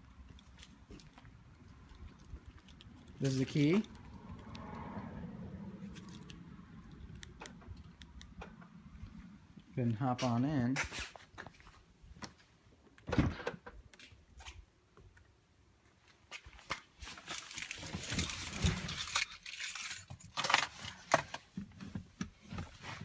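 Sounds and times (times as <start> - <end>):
keys jangling: 17.3 - 21.0.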